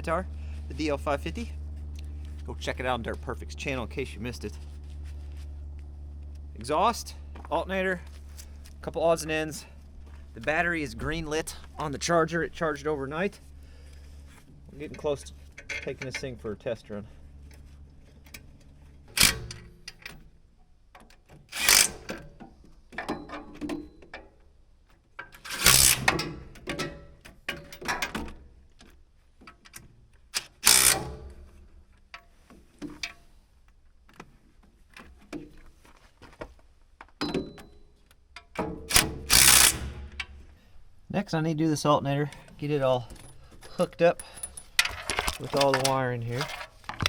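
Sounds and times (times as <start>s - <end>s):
hand tools clanking on metal: 14.7s - 16.5s, 42.3s - 47.0s.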